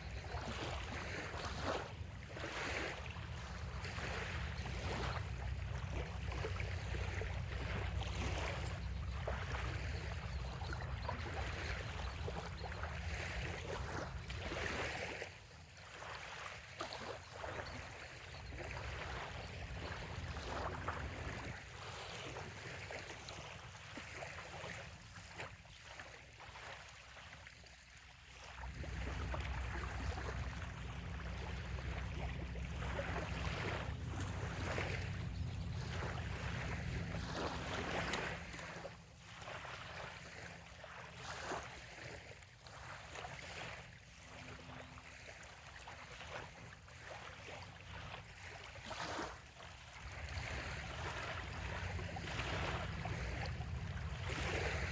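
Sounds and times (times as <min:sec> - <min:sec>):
small waves lapping: 0:00.0 - 0:54.9
low rumble: 0:28.6 - 0:38.3.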